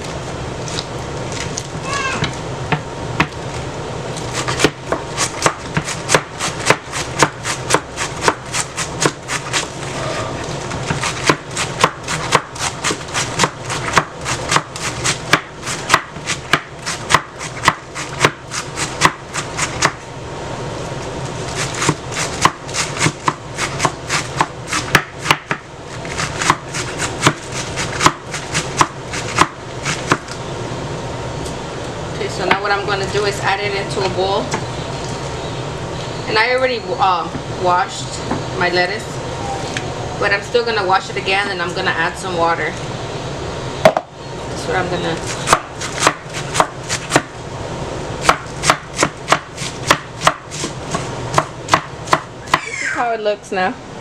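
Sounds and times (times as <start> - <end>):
knife chopping on cutting board: 4.4 - 9.7, 10.8 - 20.0, 21.6 - 30.3, 45.3 - 47.3, 48.2 - 52.6.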